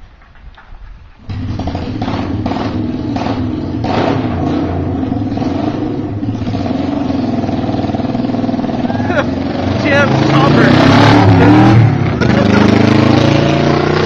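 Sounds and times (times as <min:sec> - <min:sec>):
motorcycle engine running: 0:01.2 - 0:14.0.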